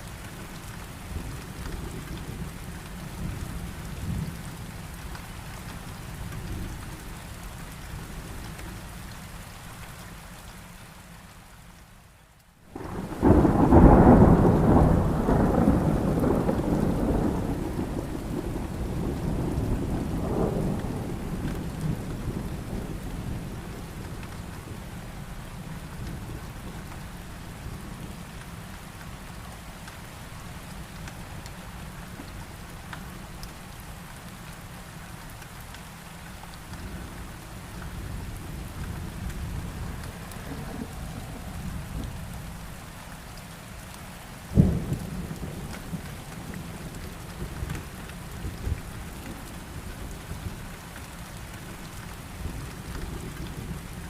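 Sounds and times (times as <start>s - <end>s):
heavy rain: 0.0s - 54.0s
low thunder rumbling: 12.7s - 27.0s, 36.8s - 42.8s, 44.5s - 50.6s
loud thunderclap: 12.8s - 22.0s, 44.6s - 46.6s.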